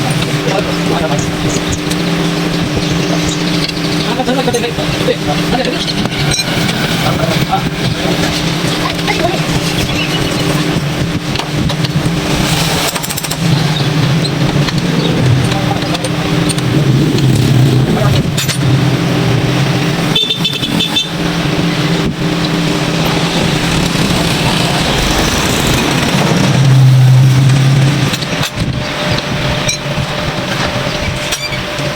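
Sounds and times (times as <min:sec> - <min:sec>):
motor humming: 0:00.0 - 0:31.9.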